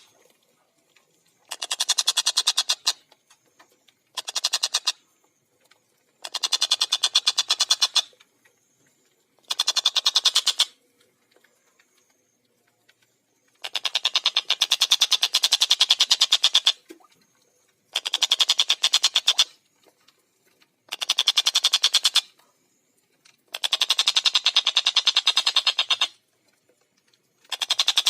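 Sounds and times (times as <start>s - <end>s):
kingfisher cackling rattle: 1.4s - 3.1s, 4.1s - 5.0s, 6.2s - 8.2s, 9.4s - 10.8s, 13.6s - 16.8s, 17.9s - 19.6s, 20.9s - 22.4s, 23.5s - 26.2s, 27.4s - 28.0s.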